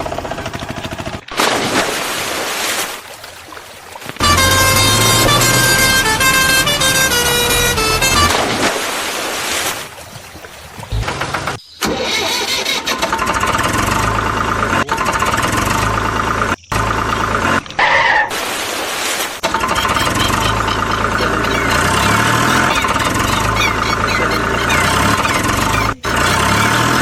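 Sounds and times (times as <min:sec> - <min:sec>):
electronic engine-like drone: 0:04.2 - 0:08.4, 0:13.0 - 0:17.9, 0:19.4 - 0:27.0.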